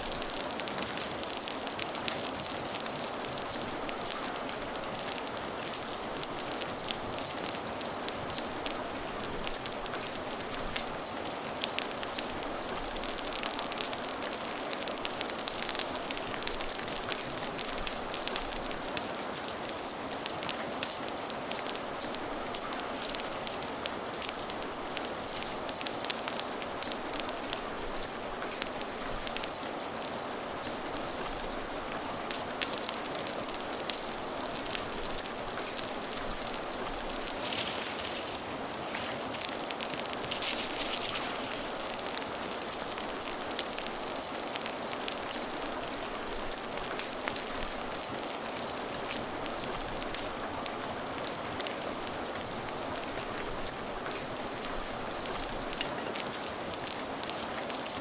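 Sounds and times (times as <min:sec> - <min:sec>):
fire crackling and popping: 0:00.0 - 0:58.0
rain hissing: 0:00.0 - 0:58.0.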